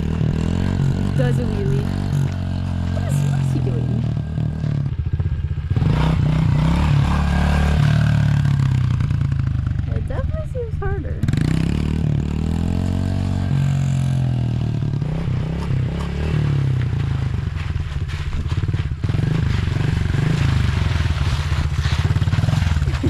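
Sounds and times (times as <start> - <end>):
dirt bike engine revving: 0.0 - 17.7.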